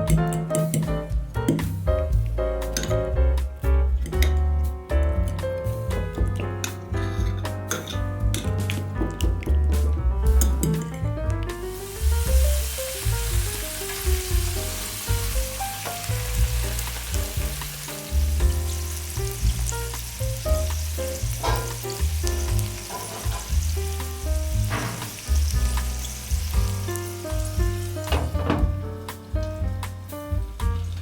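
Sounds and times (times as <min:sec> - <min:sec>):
background music with bass: 0:00.0 - 0:31.0
food sizzling in a pan: 0:11.6 - 0:28.4.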